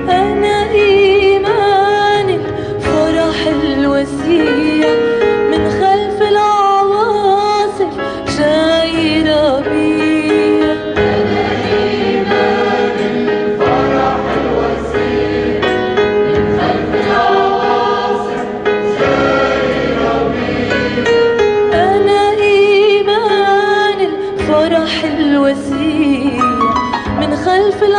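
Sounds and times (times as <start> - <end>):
choir singing a hymn: 9.8 - 24.1.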